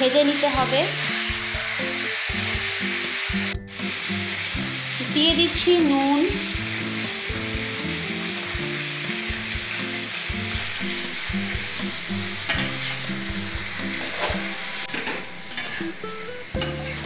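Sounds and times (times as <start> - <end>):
chicken sizzling in hot oil: 0.0 - 17.0
metal spatula scraping pan: 14.0 - 16.0.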